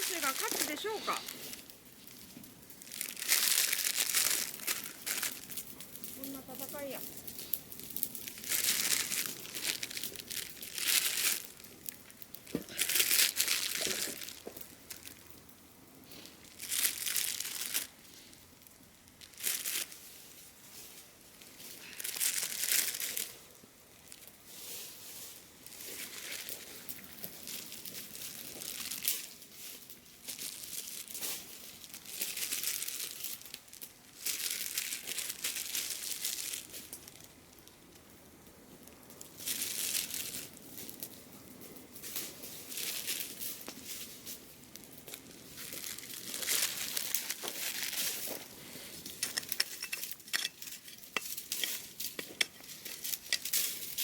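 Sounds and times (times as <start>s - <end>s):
rustling and crunching dry soil: 0.0s - 54.0s
small clicks and scrapes: 46.8s - 54.0s.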